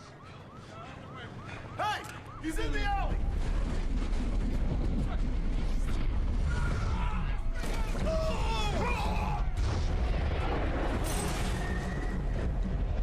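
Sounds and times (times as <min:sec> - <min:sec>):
booms: 0:03.0 - 0:13.0
film score music: 0:03.2 - 0:13.0.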